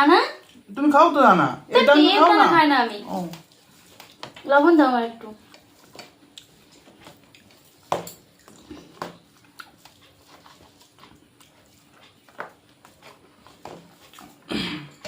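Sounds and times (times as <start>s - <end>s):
person chewing: 3.1s - 4.3s, 5.4s - 15.0s.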